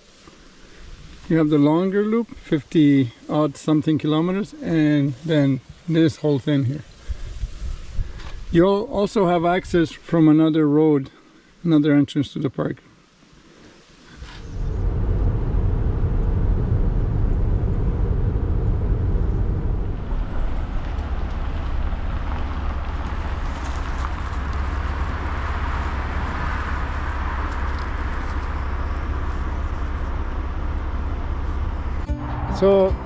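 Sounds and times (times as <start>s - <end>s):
car engine and tyre noise: 6.9s - 8.5s, 13.7s - 33.0s.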